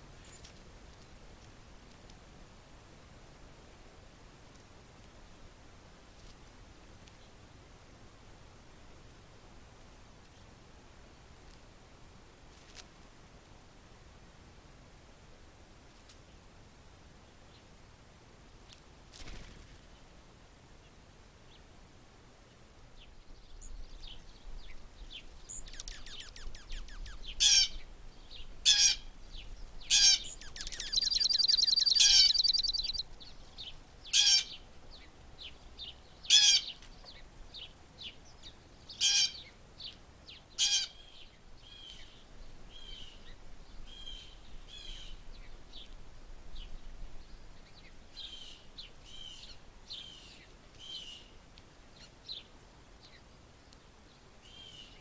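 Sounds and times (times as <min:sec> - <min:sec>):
songbirds calling: 0:22.4 - 0:55.0
soft bird chirps: 0:23.0 - 0:28.6, 0:29.2 - 0:55.0
fast bird trill: 0:29.8 - 0:33.0.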